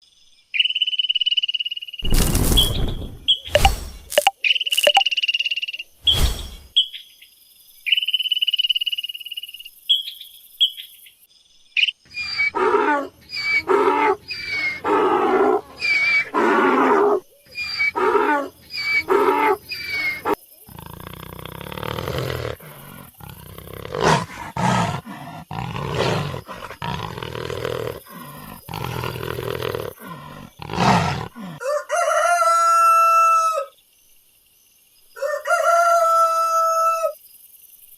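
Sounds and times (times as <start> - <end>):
high thin chirps: 2.6 - 5.2
rough noisy animal calls: 12.1 - 33.2
pitched animal calls: 12.2 - 31.6
rooster crowing: 31.5 - 33.7, 35.2 - 37.2.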